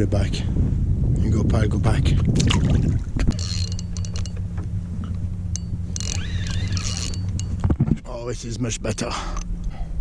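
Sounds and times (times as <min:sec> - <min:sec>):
low mechanical hum: 0:00.0 - 0:10.0
sharp clicks and rattles: 0:03.2 - 0:08.0.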